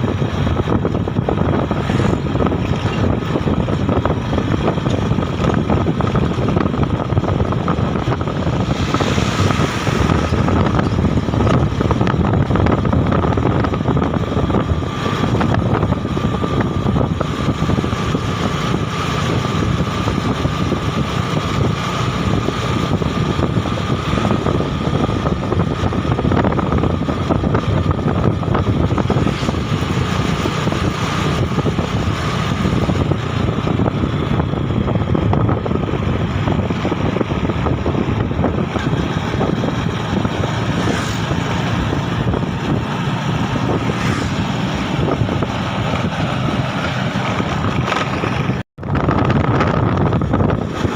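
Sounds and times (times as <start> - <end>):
motorbike engine running: 0.0 - 50.9
wind on microphone: 0.0 - 50.9.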